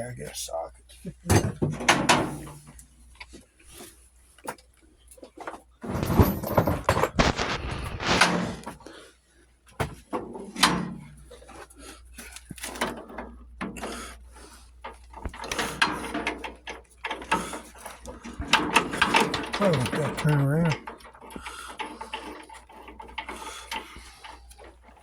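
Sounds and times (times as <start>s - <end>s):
metal tools clattering in toolbox: 5.8s - 8.6s.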